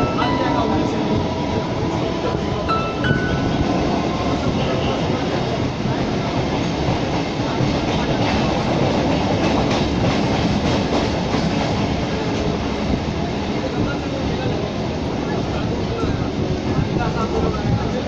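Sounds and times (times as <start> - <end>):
train rumble and rattle: 0.0 - 18.0.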